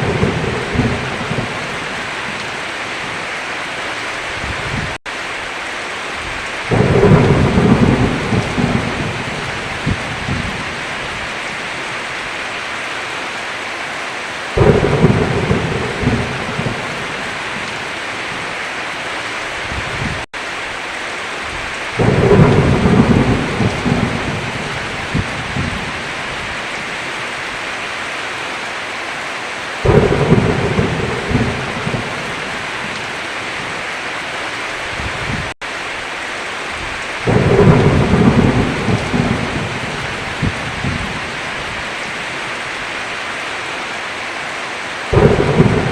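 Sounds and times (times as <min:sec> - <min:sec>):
thunder rolling: 0:00.0 - 0:02.4, 0:06.7 - 0:10.8, 0:14.6 - 0:17.8, 0:22.0 - 0:26.1, 0:29.8 - 0:33.0, 0:37.2 - 0:41.3, 0:45.1 - 0:45.9
heavy rain: 0:00.0 - 0:45.9.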